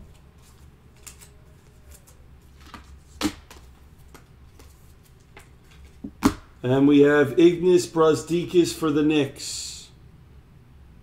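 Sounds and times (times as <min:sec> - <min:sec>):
trading cards rustling: 0:00.0 - 0:06.1.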